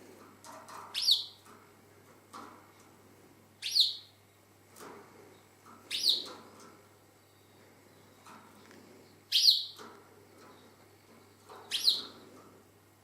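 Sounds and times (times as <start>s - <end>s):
canary chirping: 0.9s - 1.5s, 3.6s - 4.1s, 5.9s - 6.4s, 9.3s - 9.8s, 11.4s - 12.2s.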